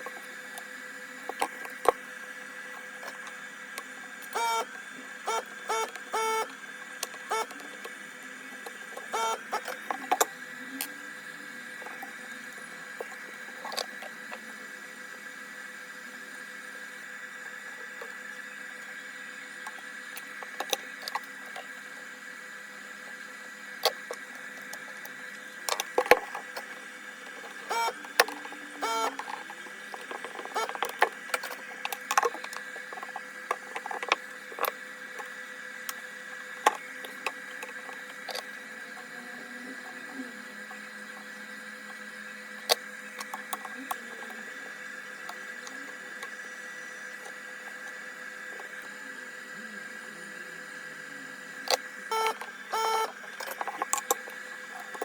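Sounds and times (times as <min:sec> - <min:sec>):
high-pitched electrical hum: 0:00.0 - 0:55.0.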